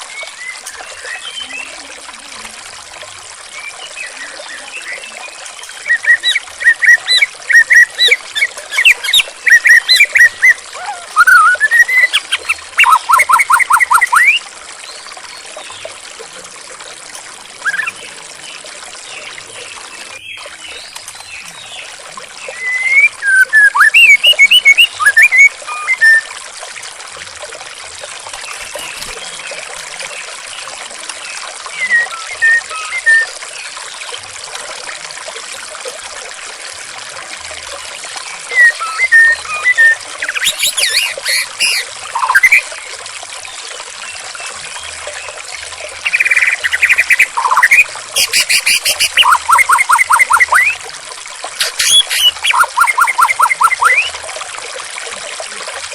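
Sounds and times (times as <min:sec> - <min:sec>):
running water trickling: 0:00.0 - 0:55.9
bird singing whistled phrases: 0:03.6 - 0:14.4, 0:17.6 - 0:18.0, 0:22.5 - 0:26.3, 0:31.7 - 0:33.4, 0:38.5 - 0:42.6, 0:46.0 - 0:50.8, 0:51.6 - 0:54.2.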